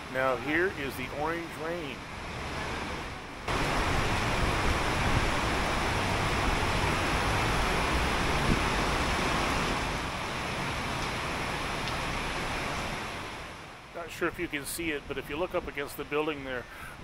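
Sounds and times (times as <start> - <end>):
heavy rain on a metal roof: 1.7 - 14.0.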